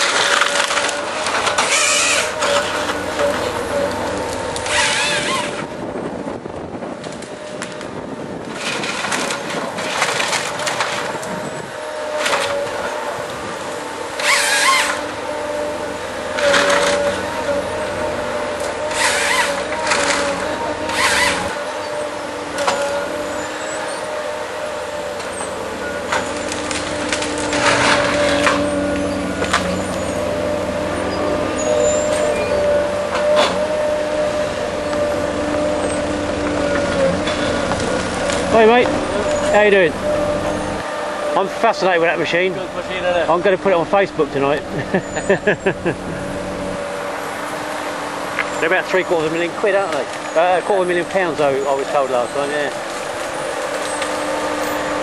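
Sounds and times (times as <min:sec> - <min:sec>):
wood cracking and snapping: 0:00.0 - 0:05.7, 0:07.0 - 0:13.4, 0:16.3 - 0:17.5, 0:18.5 - 0:21.6, 0:25.1 - 0:30.2, 0:34.9 - 0:39.7, 0:49.6 - 0:55.0
harvester engine running: 0:00.0 - 0:55.0.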